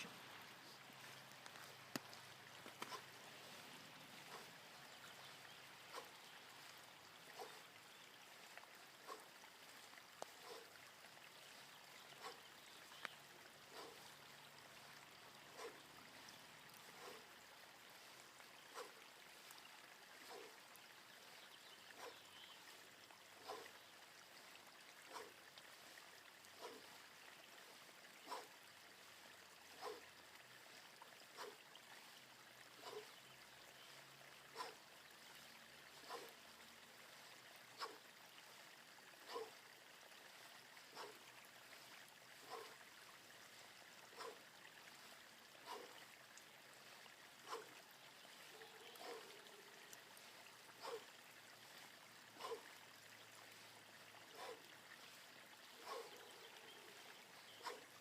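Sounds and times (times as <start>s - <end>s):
faint steady rain: 0.0s - 58.0s.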